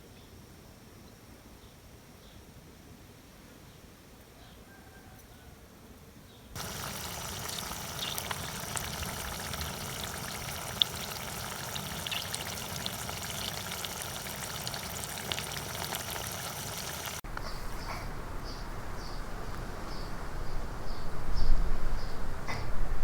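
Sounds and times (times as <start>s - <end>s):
meat sizzling in hot oil: 6.6s - 17.2s
oil popping: 6.6s - 17.4s.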